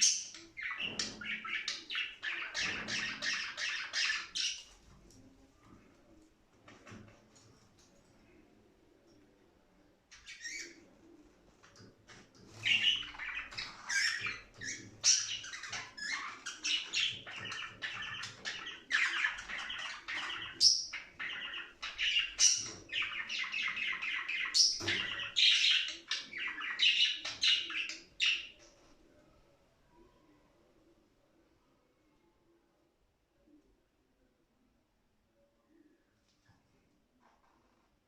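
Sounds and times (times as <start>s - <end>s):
budgerigars chattering and warbling: 0.0s - 4.7s, 12.6s - 28.6s.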